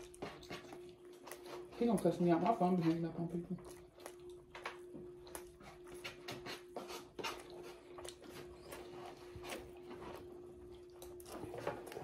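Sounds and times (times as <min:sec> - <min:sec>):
chewing mouth clicks and smacks: 0:00.0 - 0:12.0
faint steady hum: 0:00.0 - 0:12.0.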